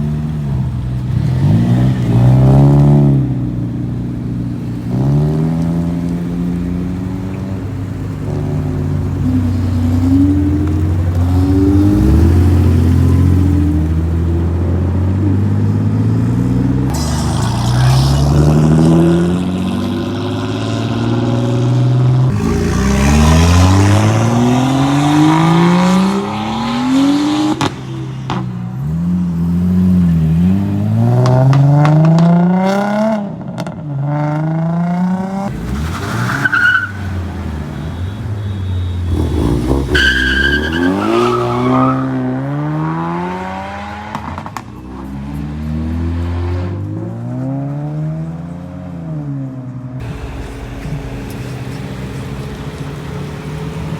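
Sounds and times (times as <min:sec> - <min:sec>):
car engines revving: 0:00.0 - 0:53.9
tyre squeal: 0:35.7 - 0:37.2, 0:37.8 - 0:42.3.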